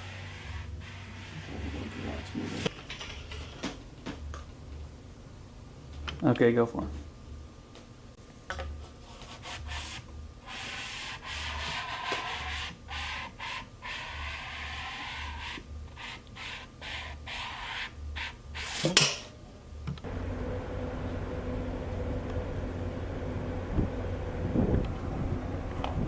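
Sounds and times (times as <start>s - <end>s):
rasping rubbing strokes: 9.3s - 19.0s.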